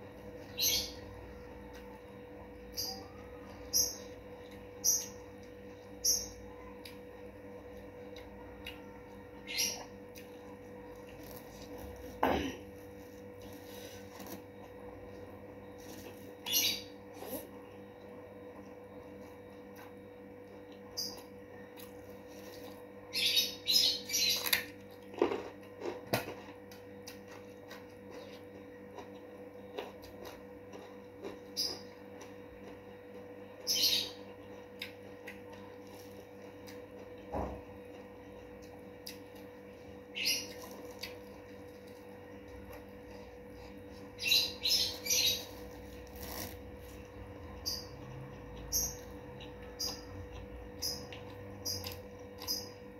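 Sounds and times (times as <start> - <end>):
faint steady hum: 0.0 - 52.9
crunching crispy food: 34.5 - 44.2, 44.9 - 52.6.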